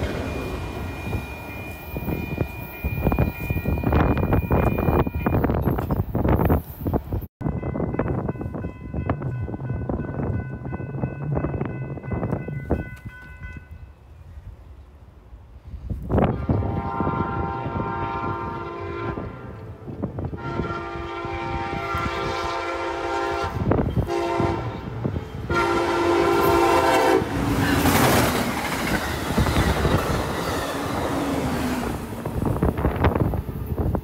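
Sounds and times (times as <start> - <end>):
clickety-clack of rail joints: 0.0 - 7.3, 7.9 - 13.8, 25.0 - 34.0
train passing with wheel noise: 0.0 - 34.0
train air horn blasts: 16.2 - 28.0.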